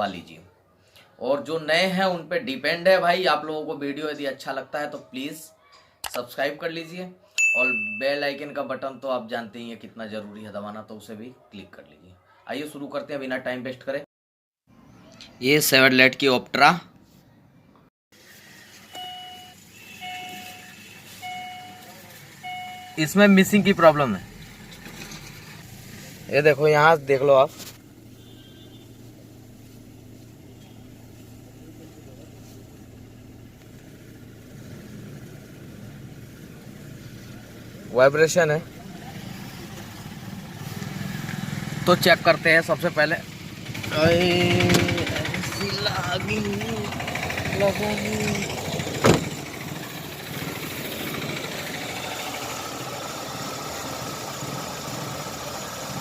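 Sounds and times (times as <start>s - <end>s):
car engine idling with misfire: 41.8s - 56.0s.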